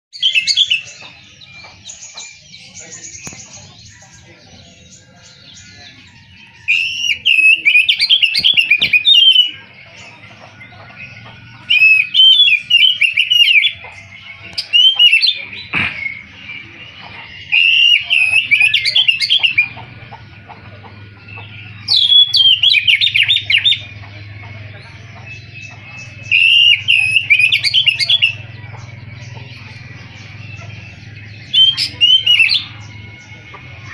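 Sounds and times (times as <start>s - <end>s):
magpie-robin singing whistled phrases: 0.1s - 1.1s, 5.2s - 9.7s, 11.0s - 16.6s, 17.2s - 19.8s, 21.4s - 24.0s, 25.2s - 28.5s, 29.5s - 33.9s
bird twittering: 0.1s - 33.9s.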